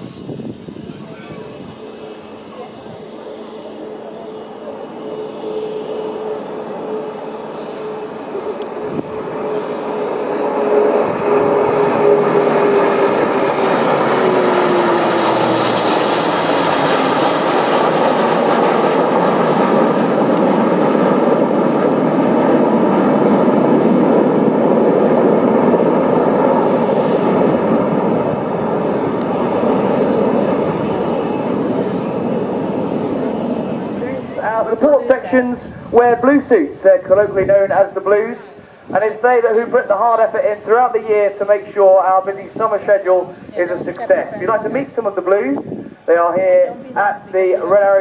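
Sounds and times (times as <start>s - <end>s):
propeller tone dropping in pitch: 0.0s - 48.0s
turboprop engines droning: 0.0s - 48.0s.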